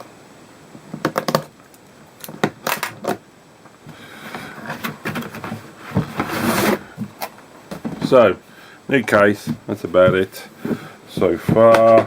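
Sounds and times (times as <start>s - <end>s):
case contents shuffling and knocking: 4.3s - 12.0s.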